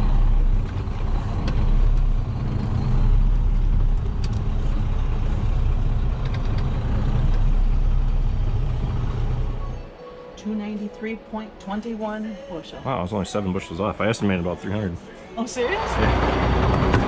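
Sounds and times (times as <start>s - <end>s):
diesel truck engine rumbling: 0.0s - 10.0s, 15.4s - 17.0s.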